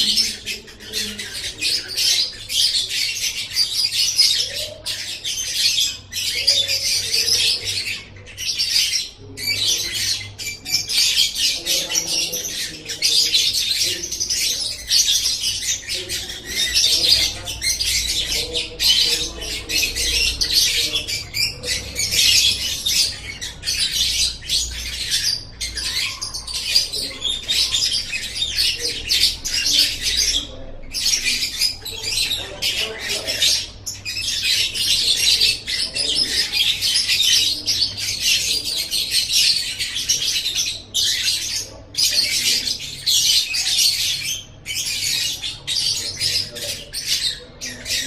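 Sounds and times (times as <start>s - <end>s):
bird chattering and trilling: 0.0s - 48.0s.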